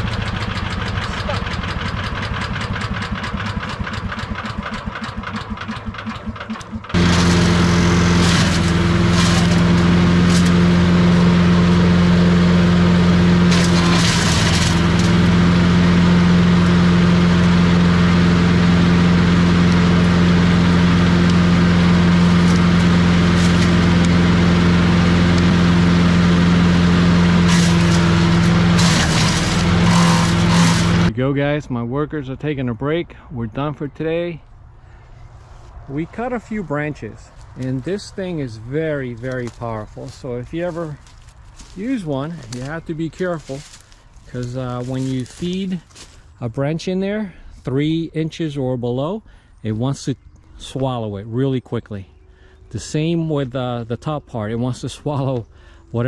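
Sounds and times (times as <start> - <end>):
wood chipper engine running: 0.0 - 31.2, 34.8 - 46.4.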